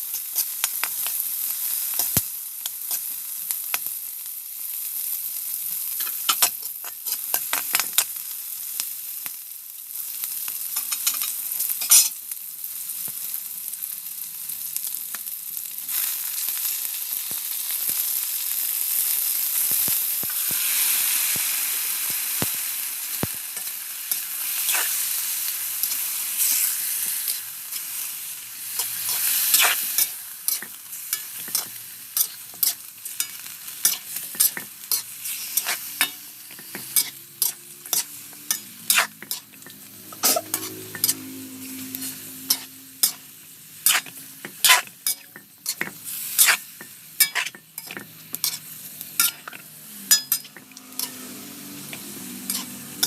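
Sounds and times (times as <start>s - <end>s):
food sizzling in a pan: 0.0s - 53.0s
utensil scraping a pan: 28.8s - 43.2s, 43.8s - 53.0s.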